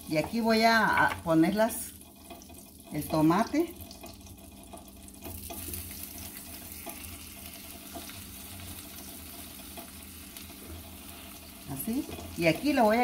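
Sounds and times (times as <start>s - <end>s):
tomato slices sizzling in butter: 5.1s - 13.0s.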